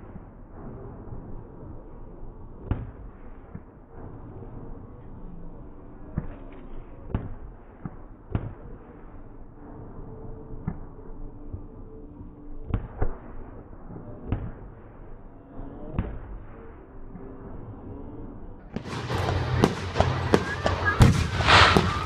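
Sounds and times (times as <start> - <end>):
steady background rumble: 0.0 - 22.0
fireworks bangs: 18.7 - 22.0.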